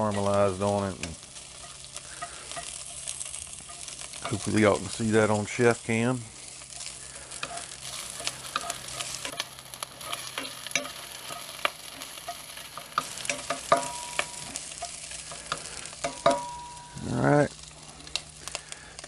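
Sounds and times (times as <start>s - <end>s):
meat sizzling in hot oil: 0.0s - 19.0s
wooden spatula scraping: 6.7s - 16.4s.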